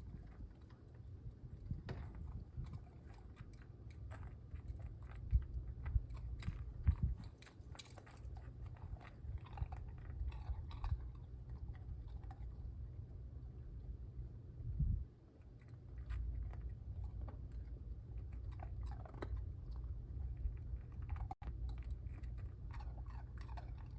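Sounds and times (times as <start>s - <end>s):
puppy crunching ice: 0.0s - 12.5s
steady low rumble: 0.0s - 23.9s.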